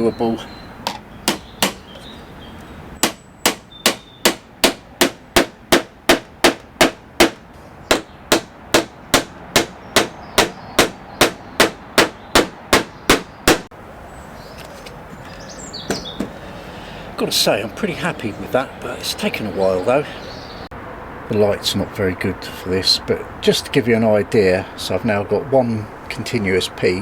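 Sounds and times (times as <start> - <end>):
hammer driving nails into wood: 0.9 - 1.8, 3.0 - 13.7.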